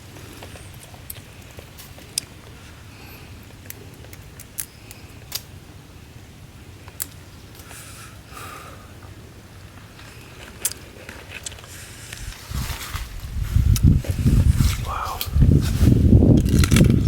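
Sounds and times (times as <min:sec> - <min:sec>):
sharp clicks and snaps: 0:03.6 - 0:05.5, 0:06.9 - 0:07.7, 0:16.3 - 0:17.0.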